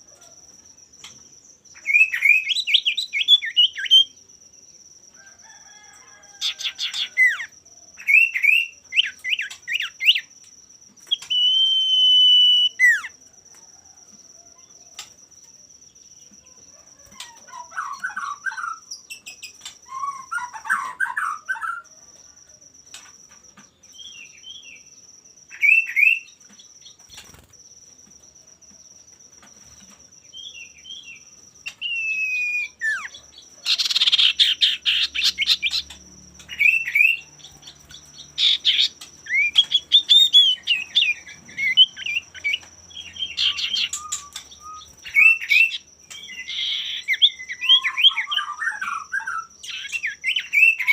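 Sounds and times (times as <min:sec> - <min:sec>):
bird singing whistled notes: 0:01.7 - 0:04.2, 0:06.6 - 0:10.3, 0:10.9 - 0:13.2, 0:25.5 - 0:27.4, 0:30.3 - 0:50.9.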